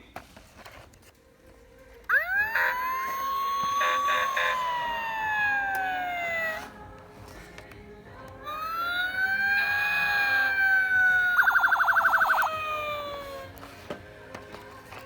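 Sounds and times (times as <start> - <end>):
siren winding up and down: 2.1 - 6.7, 8.5 - 13.6.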